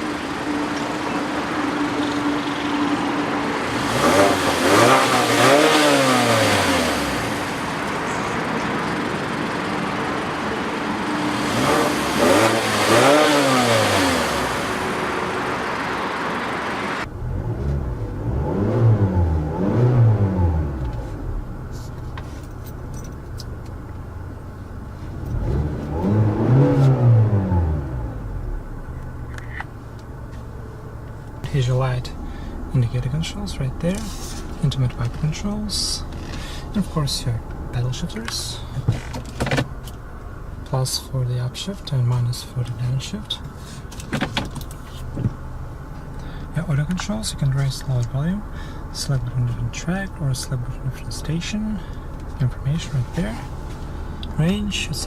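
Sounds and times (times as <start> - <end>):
car engine revving: 0.0 - 22.4, 23.0 - 55.0.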